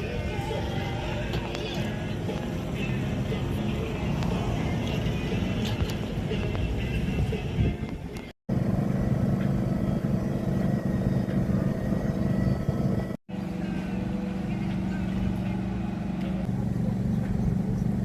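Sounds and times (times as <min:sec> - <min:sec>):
low motor hum: 0:00.0 - 0:18.0.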